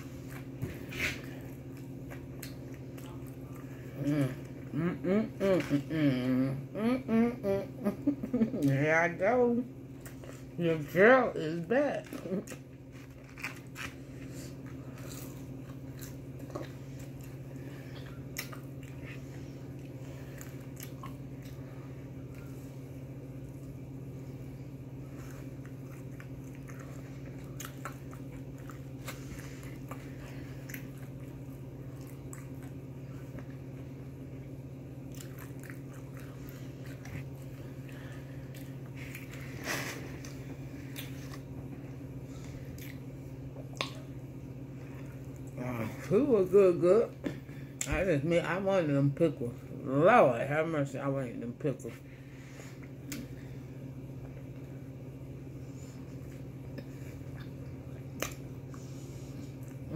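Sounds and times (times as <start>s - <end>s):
person chewing fried chicken: 0.0s - 4.8s, 12.1s - 23.8s, 24.7s - 45.6s, 56.0s - 59.9s
steady low hum: 0.0s - 59.9s.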